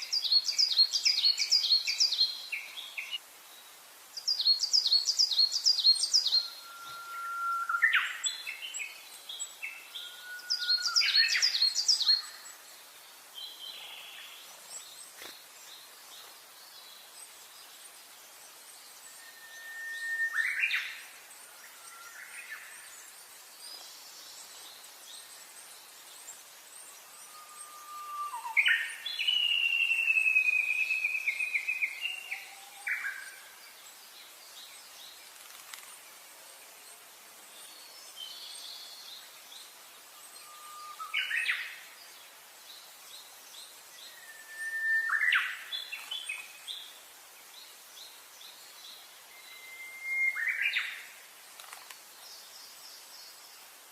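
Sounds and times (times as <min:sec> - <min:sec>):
bird whistles and trills: 0:05.4 - 0:08.3, 0:10.0 - 0:12.4, 0:19.2 - 0:21.0, 0:40.4 - 0:41.7, 0:44.1 - 0:46.5, 0:49.4 - 0:51.0.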